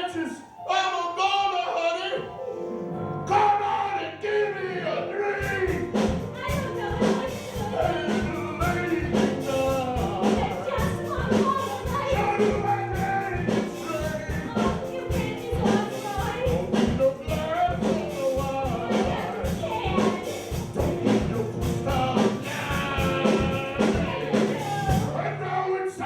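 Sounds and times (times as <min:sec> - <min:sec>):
voices singing: 0:03.0 - 0:26.0
drumbeat: 0:05.4 - 0:25.2
band playing rock and roll: 0:05.4 - 0:25.3.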